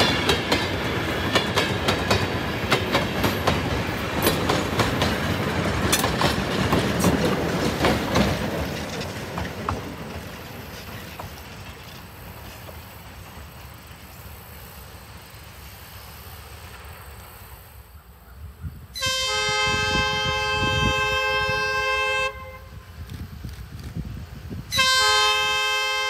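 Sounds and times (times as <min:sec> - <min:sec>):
train wheels clicking over rail joints: 0:00.0 - 0:15.0, 0:22.9 - 0:24.9.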